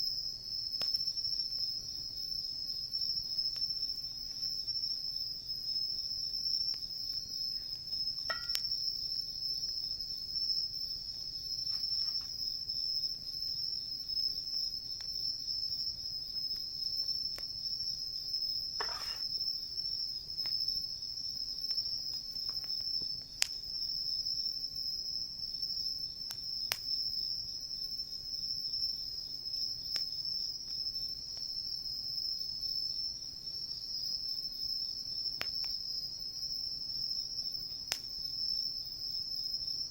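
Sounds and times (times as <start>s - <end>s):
insects trilling: 0.0s - 39.9s
campfire crackling and popping: 0.7s - 5.1s, 5.9s - 13.7s, 16.4s - 20.6s, 21.6s - 23.8s.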